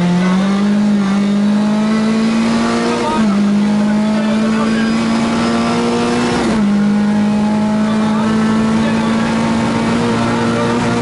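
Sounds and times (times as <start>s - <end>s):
rally car engine accelerating: 0.0s - 11.0s.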